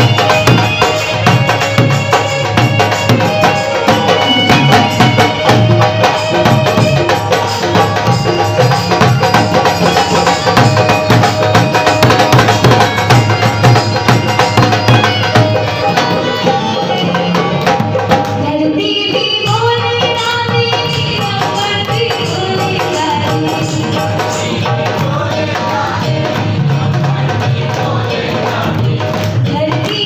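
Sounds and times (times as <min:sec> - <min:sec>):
sustained melody: 0:00.0 - 0:18.1
tabla hand drumming: 0:00.0 - 0:30.0
pitch-bending melody line: 0:02.3 - 0:18.0.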